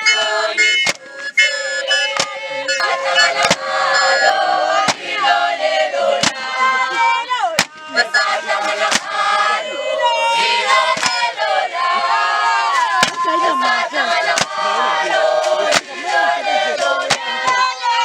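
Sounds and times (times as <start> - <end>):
group singing and chanting: 0.0 - 18.0
loud percussive beats: 2.1 - 5.1.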